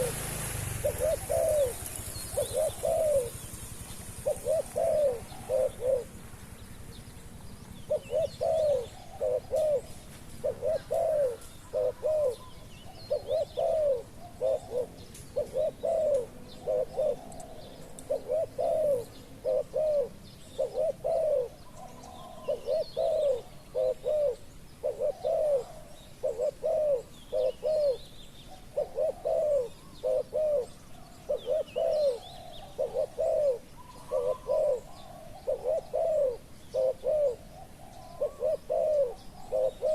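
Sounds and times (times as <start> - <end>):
doves cooing: 0.0 - 39.9
small birds chirping: 0.0 - 39.9.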